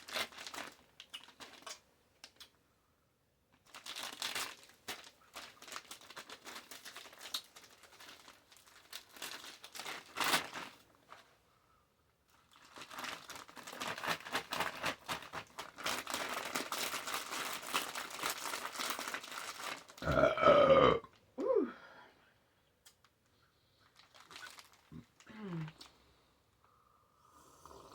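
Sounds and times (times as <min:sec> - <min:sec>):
paper wrapper crinkling: 0:00.0 - 0:02.5, 0:03.6 - 0:11.3, 0:12.3 - 0:20.3, 0:23.8 - 0:25.9.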